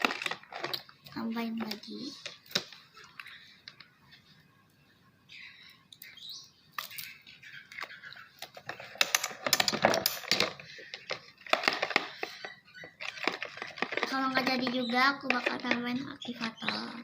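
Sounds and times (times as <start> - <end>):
objects clicking against a container: 7.8 - 16.8.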